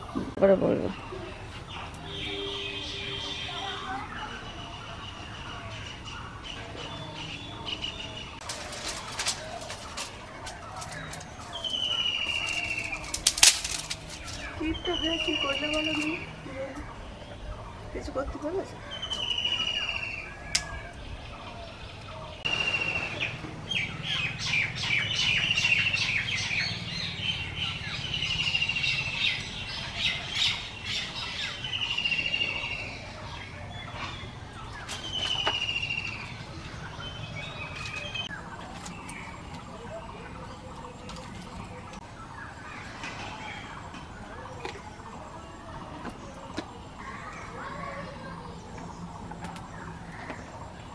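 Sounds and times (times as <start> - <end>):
birds squawking and calling: 0.0 - 50.9
sharp crackles and snaps: 8.4 - 14.6.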